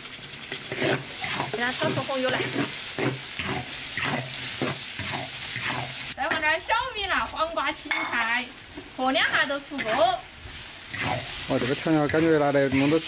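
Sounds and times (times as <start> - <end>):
spatula stirring and scraping: 0.0 - 6.2, 7.9 - 13.0
paste sizzling in hot oil: 0.0 - 13.0
woman speaking: 1.5 - 2.6, 6.2 - 10.2.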